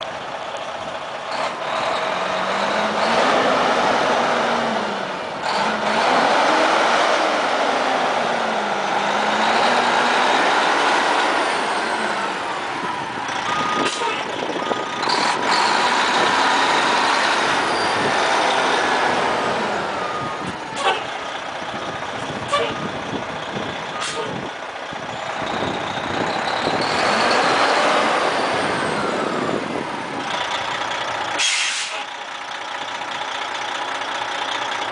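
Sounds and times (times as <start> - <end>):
diesel truck engine revving: 0.0 - 34.9
reversing alarm beeping: 13.4 - 16.0.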